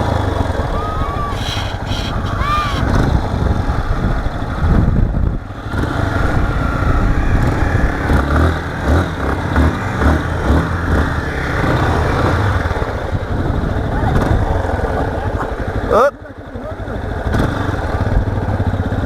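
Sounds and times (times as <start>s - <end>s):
low pulses: 0.0s - 14.3s
motorcycle engine running: 1.4s - 19.0s.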